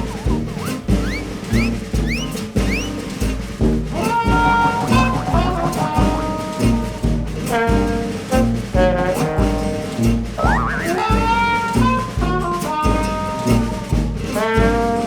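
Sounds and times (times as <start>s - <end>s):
rising horn slide: 0.0s - 3.1s
upbeat jazzy music with brass: 0.0s - 15.0s.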